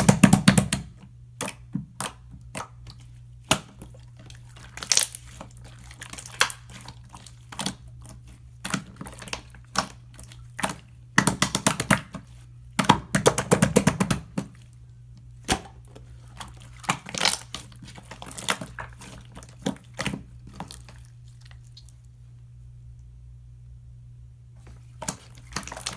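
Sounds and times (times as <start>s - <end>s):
slime crackling: 2.5s - 22.1s, 24.9s - 25.9s.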